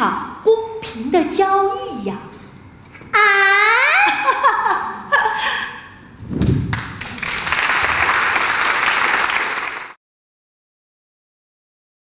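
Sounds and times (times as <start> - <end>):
audience applauding: 6.7 - 10.0.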